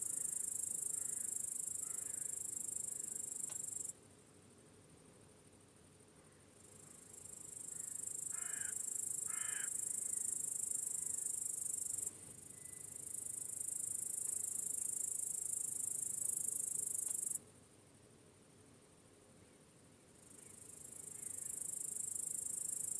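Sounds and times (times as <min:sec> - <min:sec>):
crickets trilling: 0:00.0 - 0:03.9, 0:05.8 - 0:17.4, 0:20.2 - 0:22.9.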